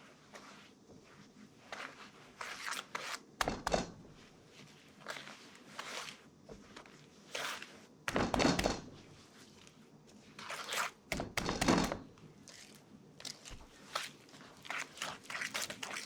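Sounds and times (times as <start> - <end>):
rustling handling noises: 0.0 - 16.0
dull thunks on work surface: 8.1 - 9.0, 11.1 - 12.1.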